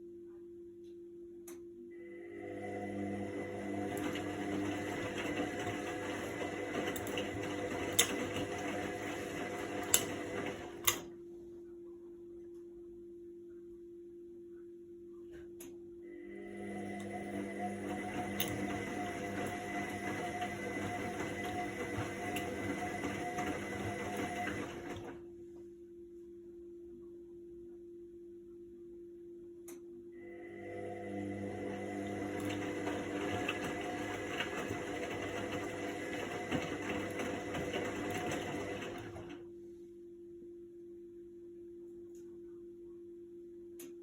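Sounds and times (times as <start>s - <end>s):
faint steady hum: 0.0s - 3.5s, 10.6s - 17.7s, 25.0s - 31.4s, 39.3s - 44.0s
washing machine motor and drum: 2.2s - 11.1s, 16.2s - 25.2s, 30.3s - 39.5s.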